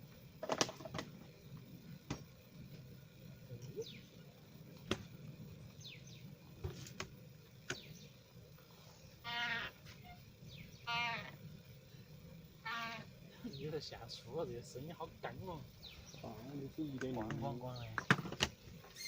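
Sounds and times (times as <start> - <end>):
birds whistling: 3.8 - 4.2, 5.7 - 6.3, 9.1 - 11.4, 15.8 - 16.6
harsh wavering animal call: 9.2 - 10.2, 10.8 - 11.4, 12.6 - 13.2.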